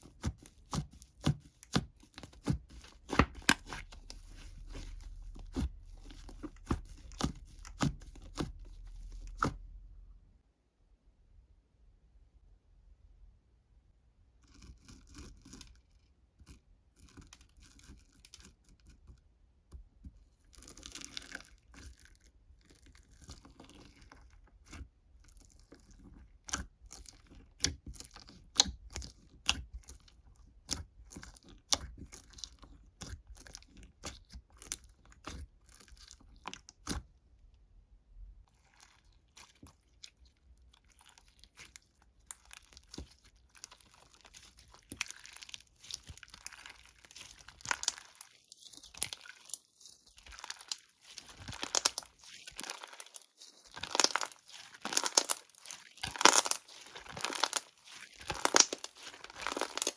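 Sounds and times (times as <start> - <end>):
crunching and rustling: 0.0 - 9.6, 38.5 - 59.9.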